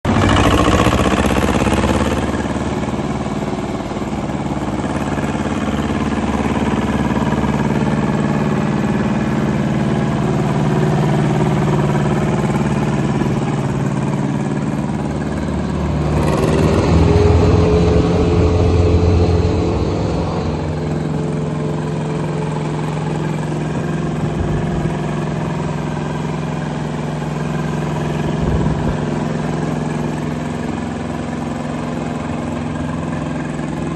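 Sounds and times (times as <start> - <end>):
diesel engine running: 0.0 - 33.9
steady machine whine: 12.1 - 33.8.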